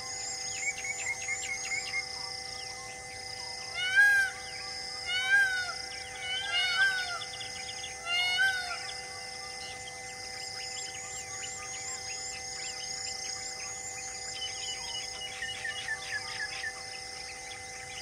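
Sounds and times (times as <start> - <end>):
steady drone: 0.0 - 18.0
bird calling loudly: 3.7 - 9.0.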